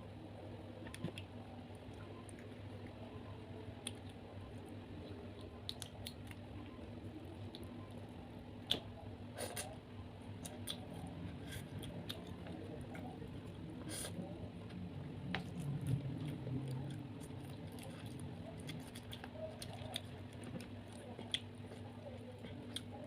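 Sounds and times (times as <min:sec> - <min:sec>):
squishy chewing: 0:15.4 - 0:23.0.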